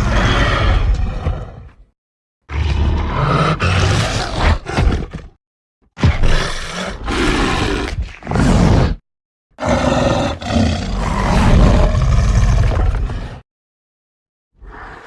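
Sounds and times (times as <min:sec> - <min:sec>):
dragon roar: 0:00.0 - 0:01.7, 0:02.5 - 0:05.3, 0:06.0 - 0:09.0, 0:09.6 - 0:13.4.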